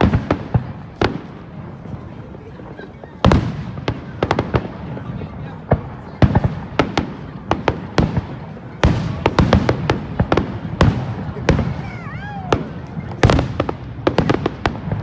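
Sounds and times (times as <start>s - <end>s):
fireworks bangs and pops: 0.0s - 15.0s.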